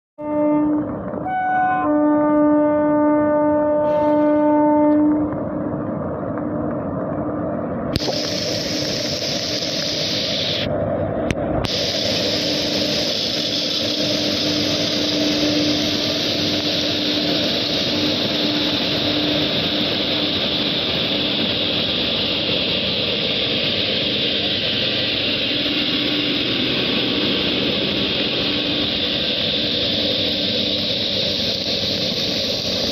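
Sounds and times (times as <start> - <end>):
heavy rain: 7.9 - 10.7, 11.7 - 32.9.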